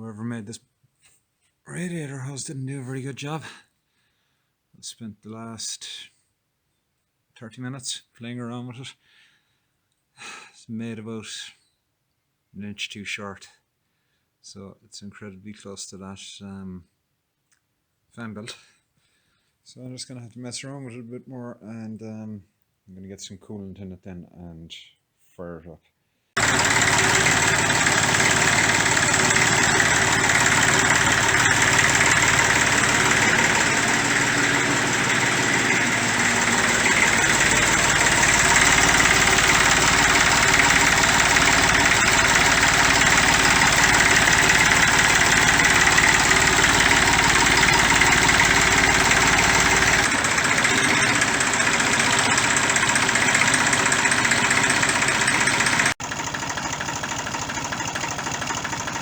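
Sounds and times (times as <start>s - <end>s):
tractor diesel engine running: 26.4s - 59.0s.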